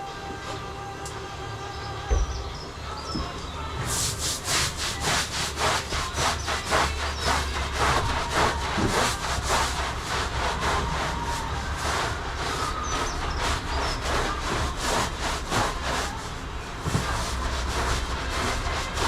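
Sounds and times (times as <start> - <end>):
rhythmic rasping strokes: 0.0 - 19.0.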